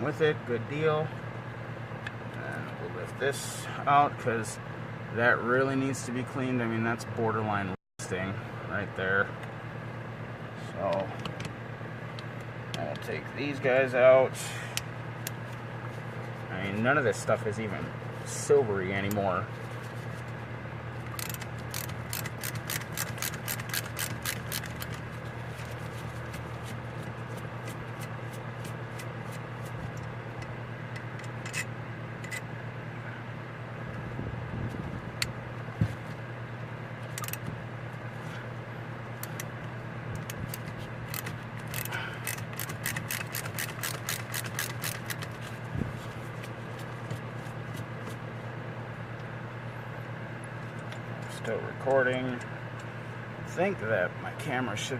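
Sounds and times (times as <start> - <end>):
steady low hum: 0.0 - 54.9
ratcheting hand tool clicking: 21.1 - 25.0, 37.2 - 37.4, 40.2 - 45.4.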